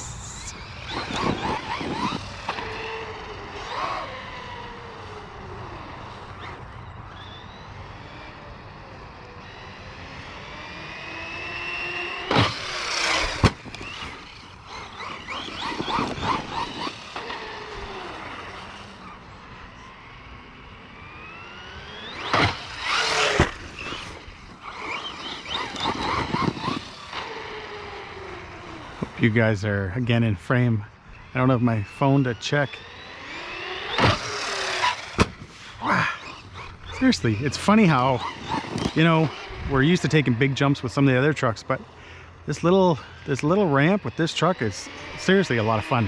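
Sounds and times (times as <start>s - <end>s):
electric motor whining: 0.0s - 29.2s, 31.1s - 46.0s
sharp knocks of landings: 12.2s - 18.6s, 22.0s - 27.3s, 33.9s - 36.7s.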